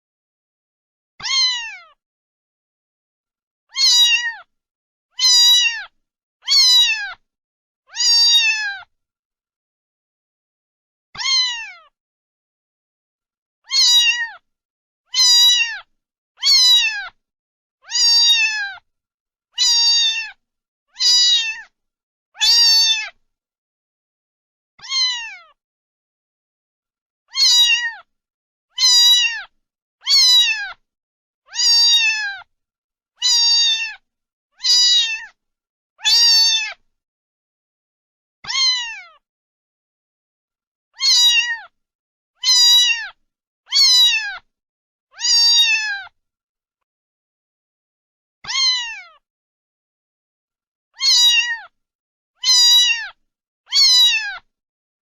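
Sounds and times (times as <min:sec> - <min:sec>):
cat meowing: 0:01.2 - 0:02.0, 0:03.7 - 0:04.5, 0:05.2 - 0:07.2, 0:07.9 - 0:08.9, 0:11.2 - 0:12.0, 0:13.6 - 0:14.4, 0:15.1 - 0:17.2, 0:17.8 - 0:18.8, 0:19.6 - 0:21.7, 0:22.4 - 0:23.2, 0:24.8 - 0:25.6, 0:27.3 - 0:28.1, 0:28.7 - 0:30.8, 0:31.5 - 0:32.5, 0:33.2 - 0:34.0, 0:34.6 - 0:35.4, 0:36.0 - 0:36.8, 0:38.4 - 0:39.2, 0:41.0 - 0:41.8, 0:42.4 - 0:44.5, 0:45.1 - 0:46.2, 0:48.4 - 0:49.2, 0:51.0 - 0:51.8, 0:52.4 - 0:54.5.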